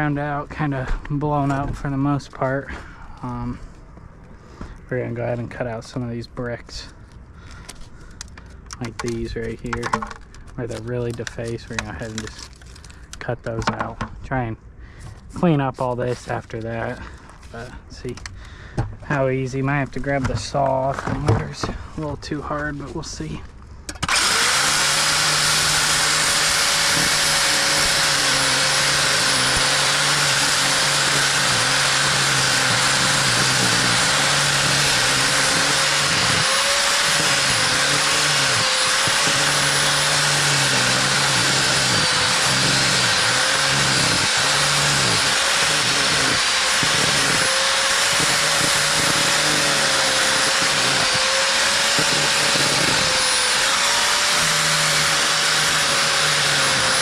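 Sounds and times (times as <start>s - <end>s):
angle grinder cutting mortar: 9.2s - 12.9s, 24.0s - 57.0s.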